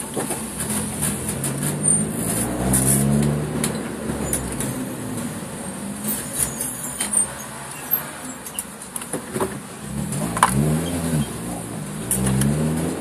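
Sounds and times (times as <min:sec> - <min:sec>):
interior clicks and rattles: 0:00.0 - 0:05.3
car engine running: 0:09.6 - 0:13.0.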